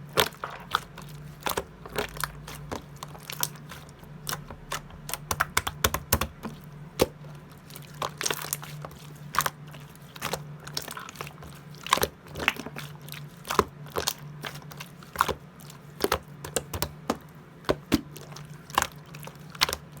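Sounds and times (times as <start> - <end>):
slime clicking and popping: 4.2 - 7.2.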